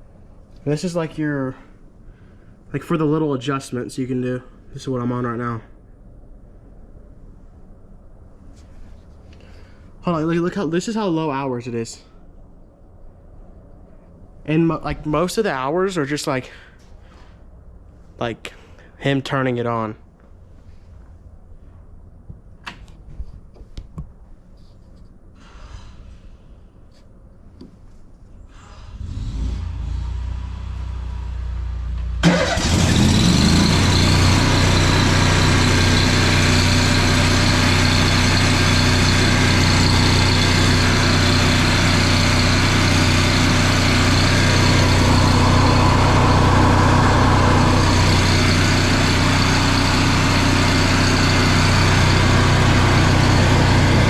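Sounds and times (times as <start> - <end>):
welder engine starting and running: 28.7 - 54.0.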